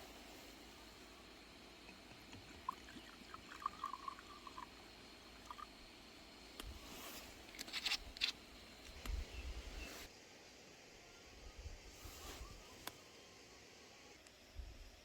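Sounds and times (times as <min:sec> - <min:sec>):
faint bird chirps: 0:11.0 - 0:13.4.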